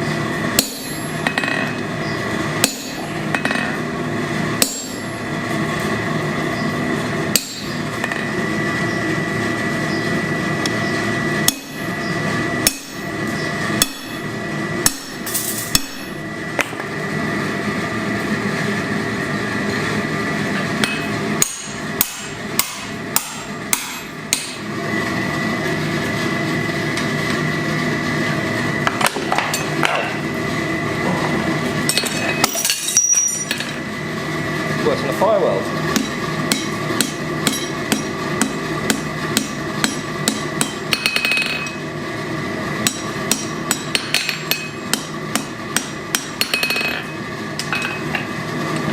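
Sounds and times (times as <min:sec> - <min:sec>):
droning hum: 0:00.0 - 0:48.9
hammer striking steel on anvil: 0:00.6 - 0:01.8, 0:02.6 - 0:03.8, 0:04.6 - 0:05.2, 0:07.3 - 0:08.3, 0:11.4 - 0:11.9, 0:12.6 - 0:13.0, 0:13.8 - 0:14.2, 0:14.8 - 0:16.2, 0:20.8 - 0:24.6, 0:35.9 - 0:41.8, 0:42.8 - 0:48.0.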